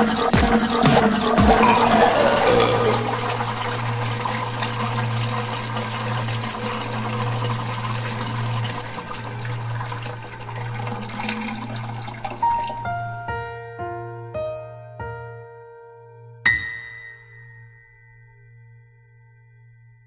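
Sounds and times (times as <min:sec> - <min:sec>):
toilet flushing: 0:01.1 - 0:12.8.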